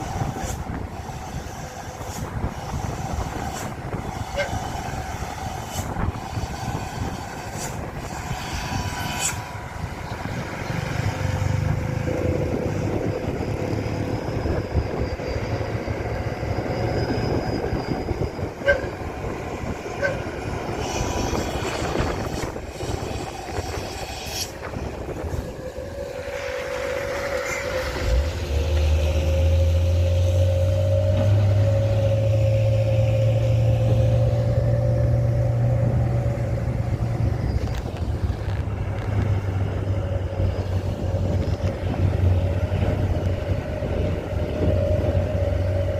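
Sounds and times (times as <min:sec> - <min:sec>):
road rattle: 0:00.0 - 0:45.9.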